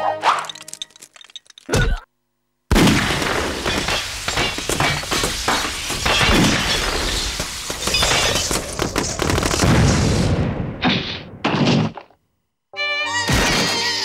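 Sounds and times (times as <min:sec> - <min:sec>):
cartoon crashes and bangs: 0:02.7 - 0:08.9, 0:13.3 - 0:14.0.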